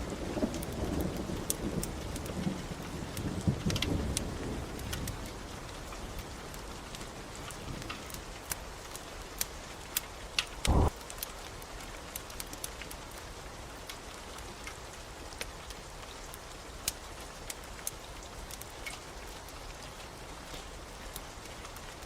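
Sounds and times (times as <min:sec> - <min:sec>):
steady rain: 0:00.0 - 0:22.0
wood fire crackling: 0:00.0 - 0:22.0
loud low thump: 0:10.7 - 0:10.9.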